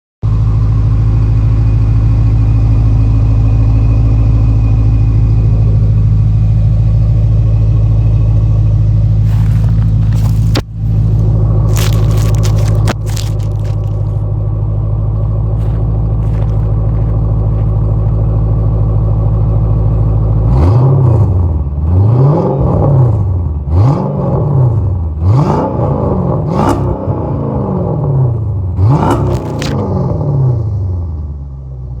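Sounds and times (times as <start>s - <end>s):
car engine idling: 0.2s - 21.9s
engine revving: 20.3s - 30.9s.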